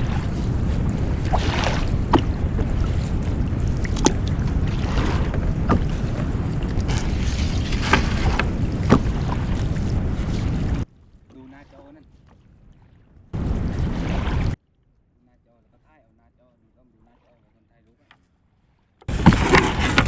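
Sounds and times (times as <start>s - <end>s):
wind on microphone: 0.0s - 10.9s, 13.2s - 14.6s
boat engine rumble: 0.0s - 20.0s.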